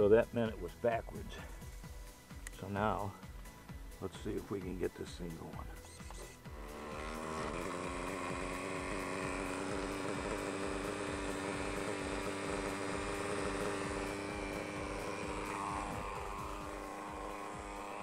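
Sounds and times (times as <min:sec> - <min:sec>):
model helicopter engine and rotor drone: 0:05.8 - 0:18.0.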